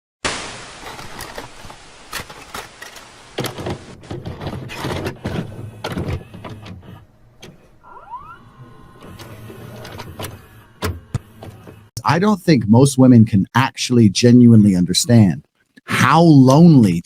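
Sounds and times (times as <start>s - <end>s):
short rising squeak: 7.8s - 10.8s.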